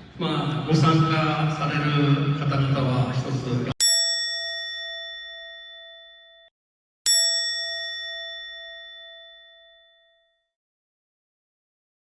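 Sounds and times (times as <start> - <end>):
struck bell chime ringing: 3.8 - 6.5, 7.1 - 10.6.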